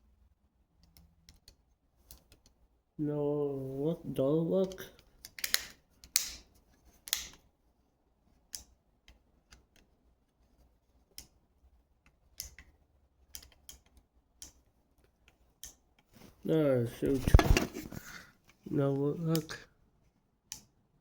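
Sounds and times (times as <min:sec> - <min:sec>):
light plastic clicks and taps: 0:12.0 - 0:16.1.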